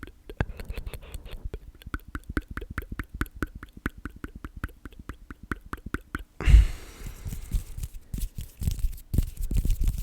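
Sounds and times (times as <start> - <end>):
wet mouth clicks: 0.0 - 6.4
breathy hiss: 6.4 - 7.8.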